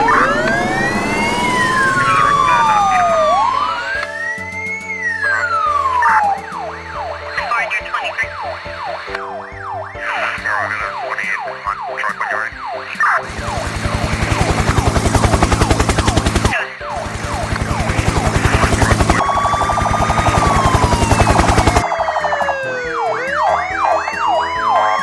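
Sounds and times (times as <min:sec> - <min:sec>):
long falling whistle: 0:00.0 - 0:09.8, 0:18.0 - 0:25.0
rising glides: 0:00.0 - 0:10.5, 0:13.2 - 0:25.0
loud rapid rattling: 0:13.0 - 0:25.0
yelping police siren: 0:18.5 - 0:25.0.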